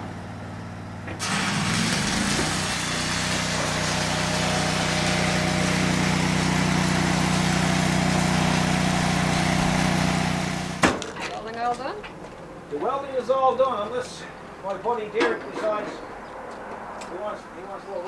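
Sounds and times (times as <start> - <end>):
small engine running: 0.0 - 10.8.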